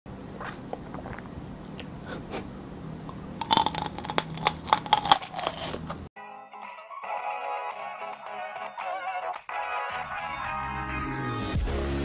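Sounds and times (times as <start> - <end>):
crisp crunches of chewing peppers: 3.1 - 6.1.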